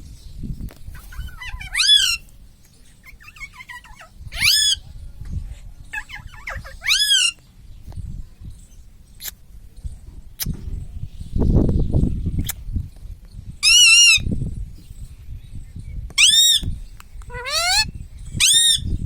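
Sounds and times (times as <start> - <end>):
parakeet chattering and calling: 0.9 - 2.3, 2.9 - 4.8, 5.8 - 7.4, 13.6 - 14.3, 16.2 - 18.9.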